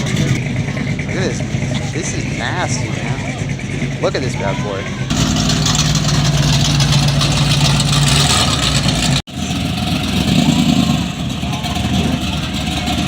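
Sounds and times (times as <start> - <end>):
car engine running loudly: 0.0 - 13.0.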